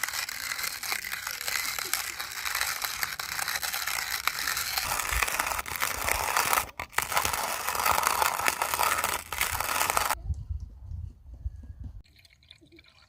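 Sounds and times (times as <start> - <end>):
manual coffee grinder crunching beans: 0.0 - 10.2.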